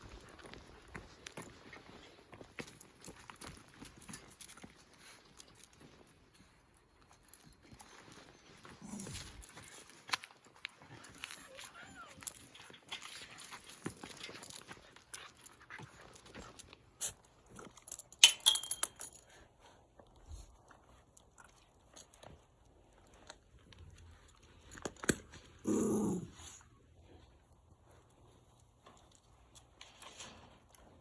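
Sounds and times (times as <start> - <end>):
light clicks and scrapes: 1.2 - 18.2, 27.4 - 31.0.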